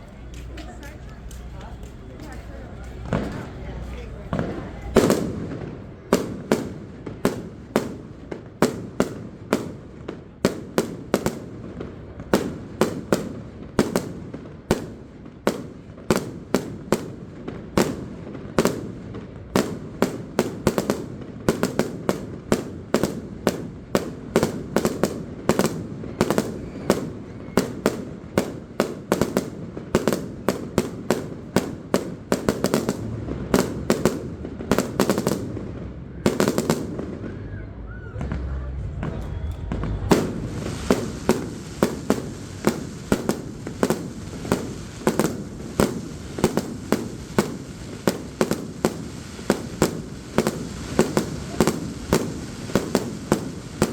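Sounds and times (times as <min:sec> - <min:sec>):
fireworks bangs and booms: 0:00.0 - 0:53.9.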